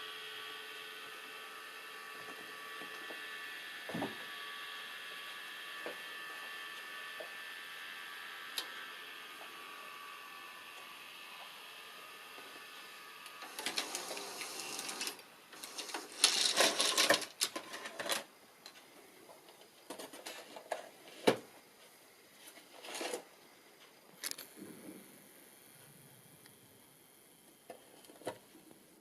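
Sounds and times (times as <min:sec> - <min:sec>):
tape mechanism whirring and clicking: 0:08.3 - 0:18.9.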